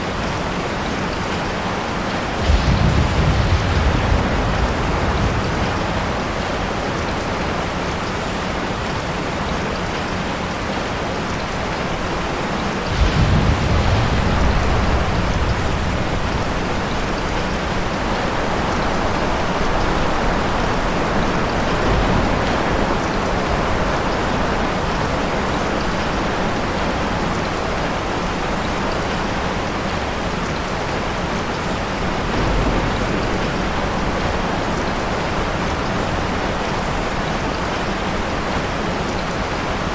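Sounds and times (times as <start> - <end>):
steady rain falling: 0.0 - 39.9
thunder rumble: 2.0 - 9.1, 11.3 - 29.2, 31.3 - 38.8.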